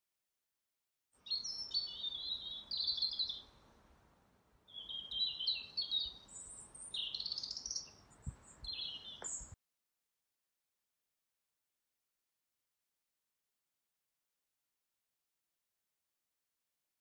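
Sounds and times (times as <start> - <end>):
songbird chirping and warbling: 1.2 - 3.7, 4.6 - 9.6.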